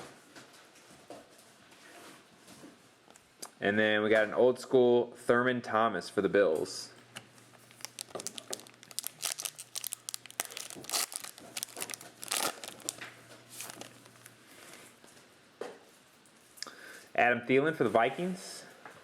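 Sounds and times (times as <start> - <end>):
trading cards crinkling and rustling: 7.4 - 14.9.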